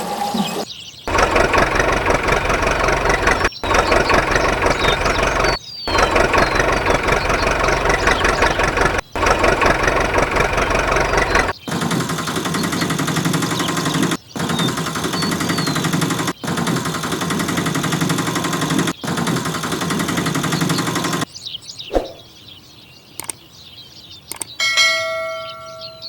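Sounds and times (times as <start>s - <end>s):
rapid rattling engine: 1.1s - 21.3s.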